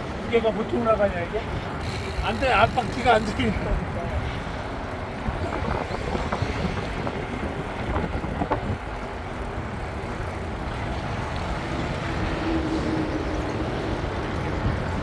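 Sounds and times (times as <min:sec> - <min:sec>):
tyres rolling rumble: 0:00.0 - 0:15.0
bike rattling clicks: 0:01.5 - 0:03.9
wind on microphone: 0:03.6 - 0:15.0.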